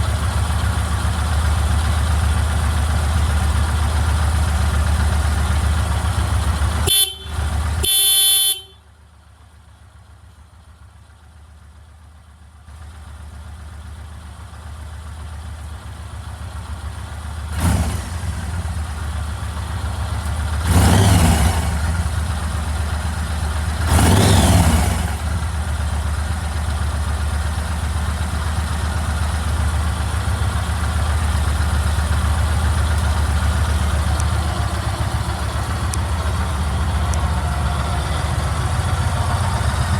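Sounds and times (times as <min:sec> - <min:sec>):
motorcycle engine idling: 0:00.0 - 0:39.9
motorcycle horn toots: 0:06.8 - 0:08.9.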